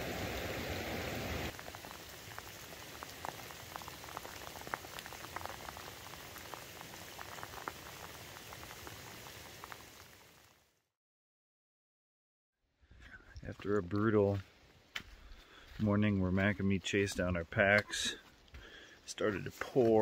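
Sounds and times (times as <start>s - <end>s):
heavy rain hissing: 0.0s - 10.4s
raindrops ticking: 1.5s - 10.1s, 16.3s - 20.0s.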